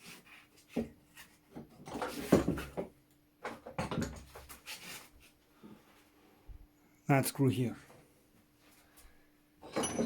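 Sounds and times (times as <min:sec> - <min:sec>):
tools clattering on workbench: 0:01.5 - 0:04.5, 0:09.6 - 0:10.0
metal parts rattling: 0:09.6 - 0:10.0.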